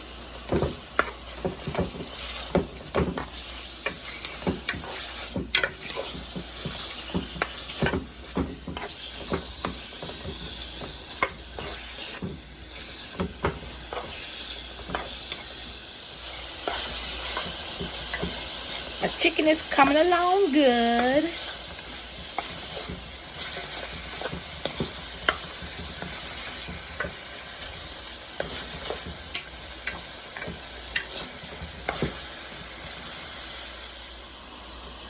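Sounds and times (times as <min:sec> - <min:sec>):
chicken sizzling in hot oil: 0:00.0 - 0:35.0.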